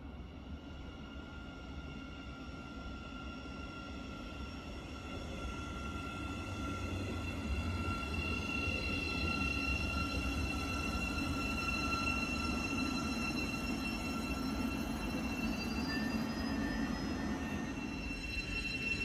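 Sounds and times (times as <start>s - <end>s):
high-pitched train whine: 0.0s - 19.0s
electric train rumbling: 4.2s - 19.0s.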